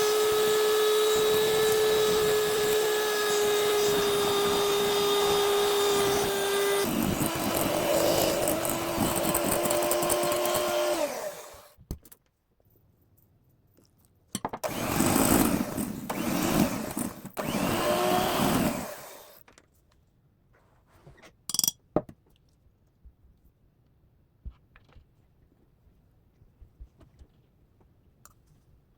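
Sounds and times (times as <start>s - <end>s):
electric kitchen mixer motor: 0.0s - 11.7s, 14.6s - 19.4s.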